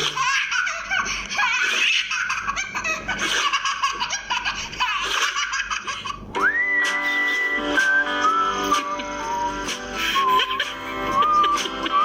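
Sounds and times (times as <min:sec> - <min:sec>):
baby giggling: 0:00.0 - 0:06.2, 0:10.0 - 0:12.0.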